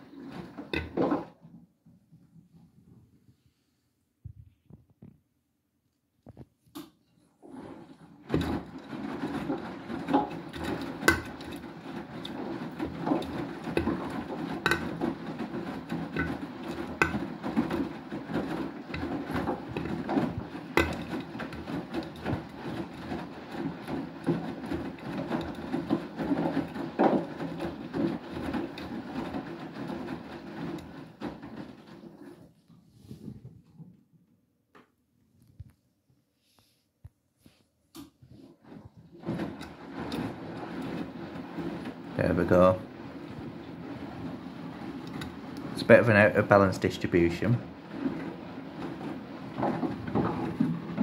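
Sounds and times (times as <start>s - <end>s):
washing machine drum sloshing: 0.0s - 2.4s, 7.2s - 33.9s, 38.0s - 51.0s.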